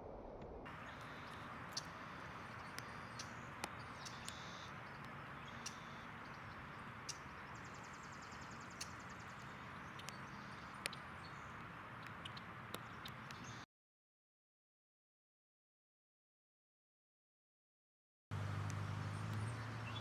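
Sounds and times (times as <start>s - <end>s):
faint high bird chirps: 0.7s - 13.7s, 18.6s - 20.0s.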